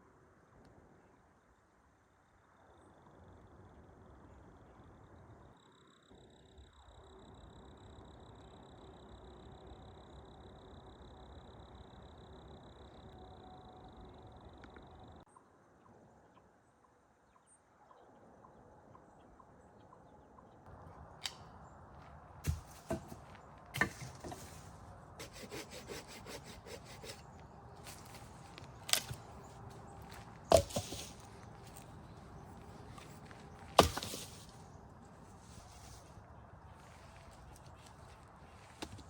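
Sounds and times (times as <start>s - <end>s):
wood cracking and splintering: 27.8s - 34.4s.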